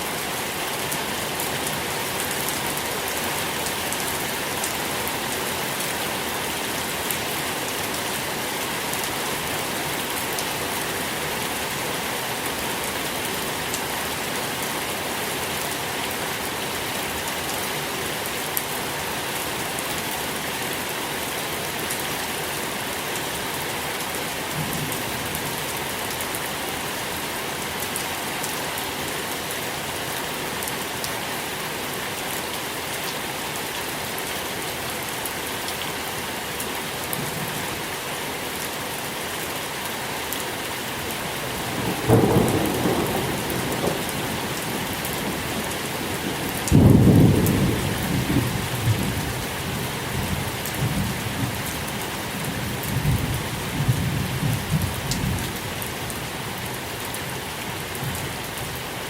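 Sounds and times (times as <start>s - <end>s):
steady rain falling: 0.0s - 59.0s
rolling thunder: 41.8s - 44.9s.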